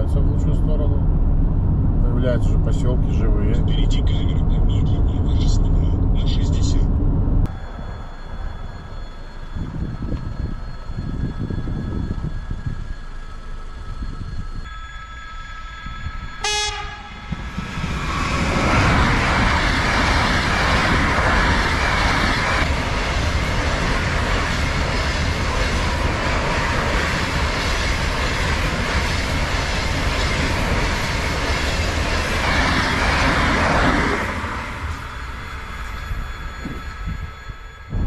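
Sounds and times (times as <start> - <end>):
car road and wind rush: 0.0 - 38.0
low rumble: 0.0 - 38.0
chime-like tone: 35.1 - 38.0.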